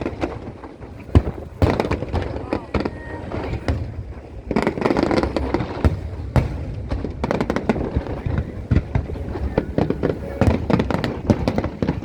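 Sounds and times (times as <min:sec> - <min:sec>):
fireworks bangs and crackles: 0:00.0 - 0:12.0
loud firework reports: 0:00.0 - 0:12.0
continuous rumble: 0:00.5 - 0:12.0.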